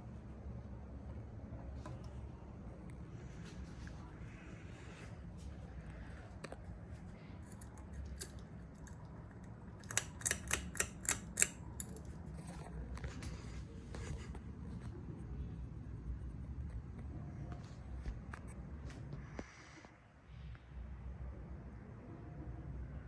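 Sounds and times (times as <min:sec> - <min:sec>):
low steady hum: 0:00.0 - 0:23.0
sharp clicks: 0:09.8 - 0:12.1.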